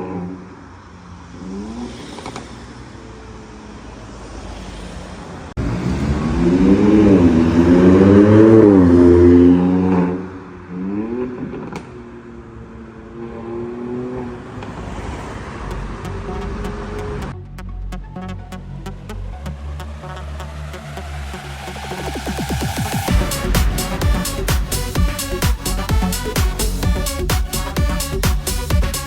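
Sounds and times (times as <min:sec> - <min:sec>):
car engine revving: 0:05.6 - 0:29.0.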